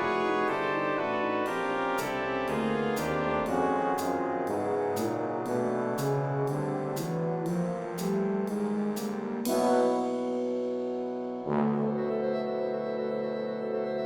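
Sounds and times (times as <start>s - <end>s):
brass ensemble chords: 0.0s - 14.0s
sharp percussion strokes: 1.4s - 5.3s.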